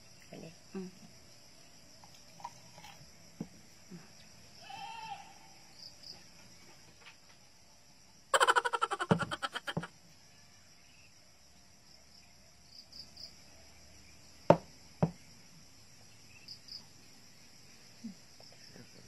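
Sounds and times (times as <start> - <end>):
crickets chirping: 0.0 - 19.0
plastic cups set on table: 9.1 - 9.9.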